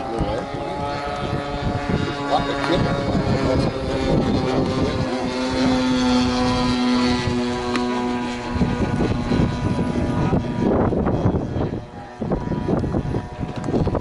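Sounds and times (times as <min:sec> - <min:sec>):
model aircraft engine drone: 0:00.0 - 0:14.0.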